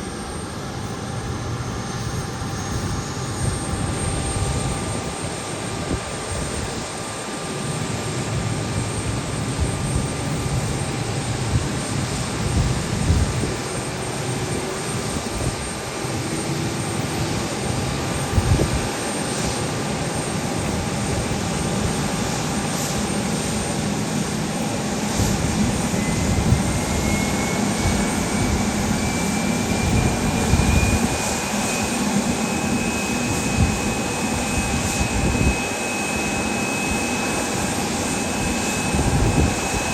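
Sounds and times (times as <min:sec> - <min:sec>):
airliner engines running: 0:00.0 - 0:39.9.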